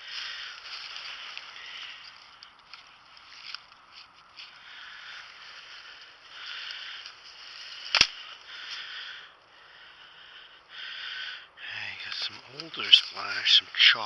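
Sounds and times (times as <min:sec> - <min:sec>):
sharp snap: 0:07.9 - 0:08.2.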